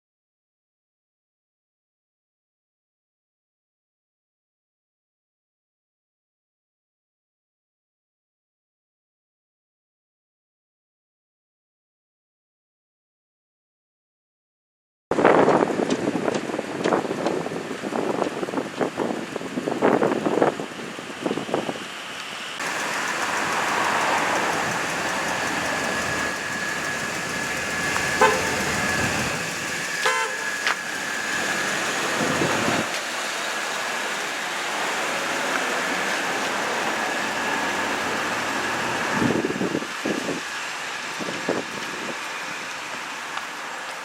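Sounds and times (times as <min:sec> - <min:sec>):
emergency vehicle horn tone: 0:22.6 - 0:31.7
short pulsed sounds: 0:22.6 - 0:32.9.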